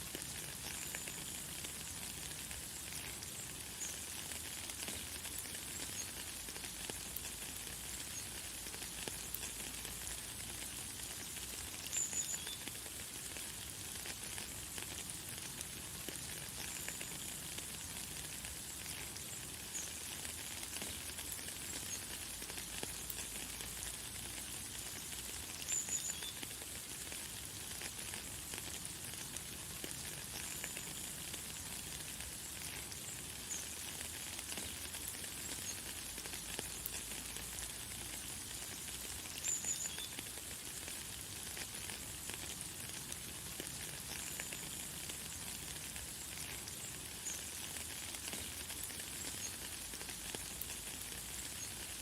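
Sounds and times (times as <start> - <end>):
light rain falling: 0.0 - 52.0.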